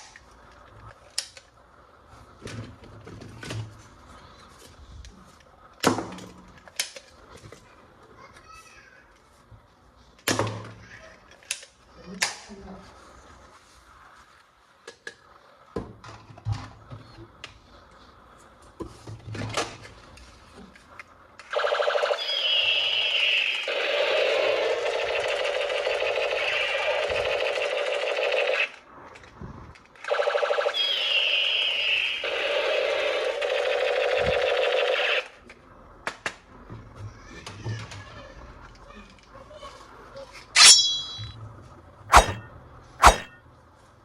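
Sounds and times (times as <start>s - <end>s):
simulated gunfire buzzing: 42.1s - 42.4s, 43.0s - 43.3s.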